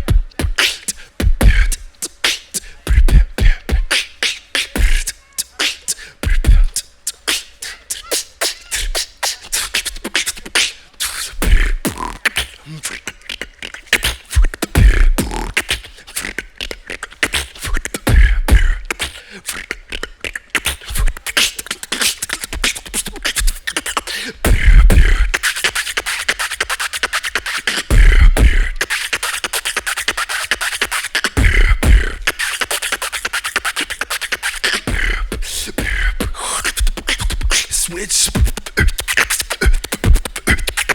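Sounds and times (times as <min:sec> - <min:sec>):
beatboxing clicks and snares: 0:00.0 - 0:40.9
deep vocal bass hits: 0:01.2 - 0:01.9, 0:02.9 - 0:03.9, 0:11.4 - 0:12.2, 0:14.8 - 0:15.6, 0:18.1 - 0:18.8, 0:24.5 - 0:25.4, 0:27.9 - 0:28.8, 0:31.4 - 0:32.3, 0:34.9 - 0:37.4.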